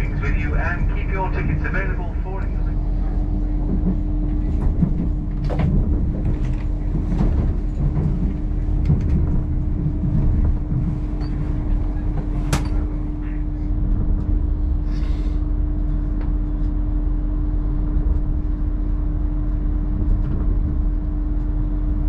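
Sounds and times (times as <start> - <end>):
constant hum: 0.0 - 22.0
train wheels rumbling on rail: 0.0 - 22.0
track clicks and knocks: 3.6 - 12.9.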